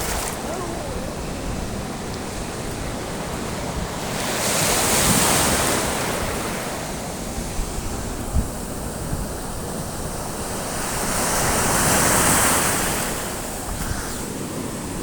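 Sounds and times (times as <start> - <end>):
sea waves breaking on shore: 0.0 - 15.0
wind on microphone: 0.0 - 15.0.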